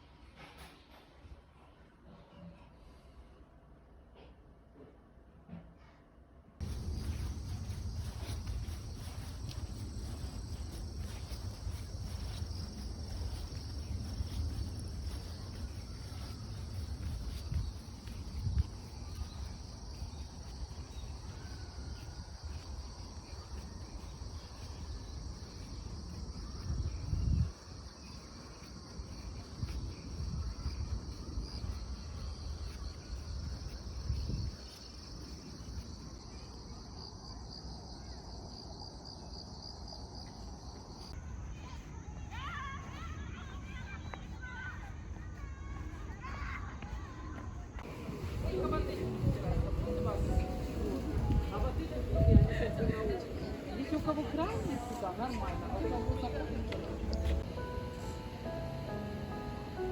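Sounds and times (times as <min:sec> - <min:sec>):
low rumble: 0:06.6 - 0:20.2
crickets trilling: 0:06.6 - 0:41.2, 0:47.8 - 0:59.9.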